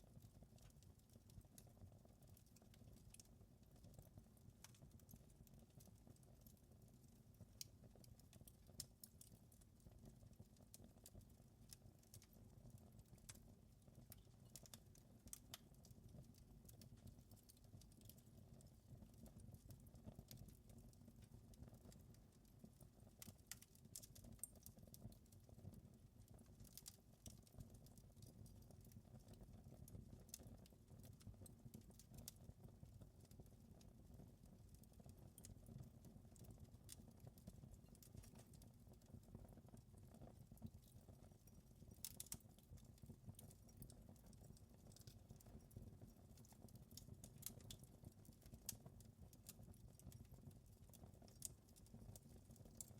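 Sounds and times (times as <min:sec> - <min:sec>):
fire crackling pops and snaps: 0:00.6 - 0:06.6, 0:13.2 - 0:32.5, 0:36.4 - 0:45.7, 0:46.3 - 0:50.4, 0:51.3 - 0:52.9.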